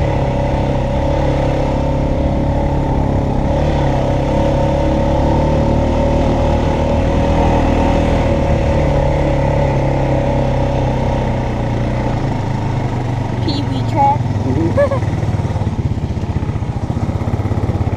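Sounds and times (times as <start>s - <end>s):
quad bike engine running: 0.0s - 17.9s.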